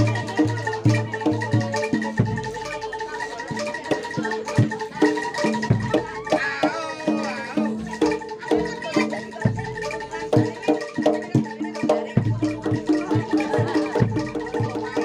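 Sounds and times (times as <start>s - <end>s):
drum strokes: 0.0s - 15.0s
metallophones ringing melody: 0.0s - 15.0s.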